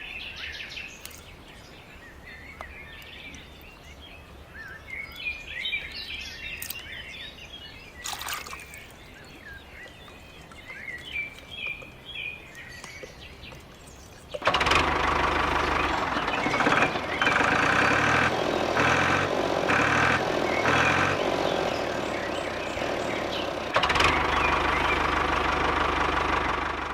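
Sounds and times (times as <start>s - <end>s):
birds chirping: 0.0s - 26.9s
small engine running: 14.3s - 26.9s.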